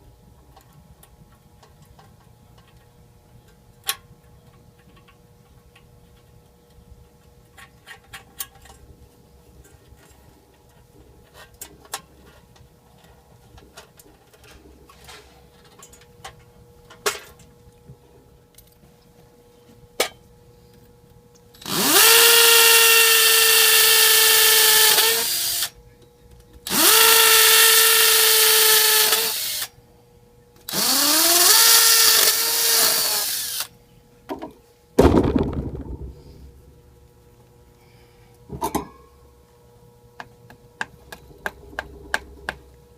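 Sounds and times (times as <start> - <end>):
power drill whining: 21.6 - 25.7, 26.7 - 29.7, 30.7 - 33.7
loud thump: 35.0 - 36.8.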